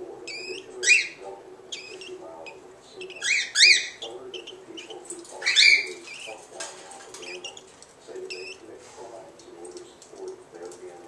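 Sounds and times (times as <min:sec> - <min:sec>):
cockatiel whistling: 0:00.3 - 0:04.5
cockatiel chirps: 0:00.3 - 0:06.3.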